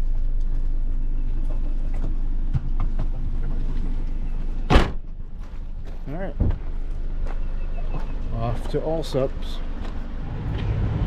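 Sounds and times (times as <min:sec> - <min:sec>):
car engine running: 0:00.0 - 0:11.0
car door shutting: 0:04.7 - 0:05.2.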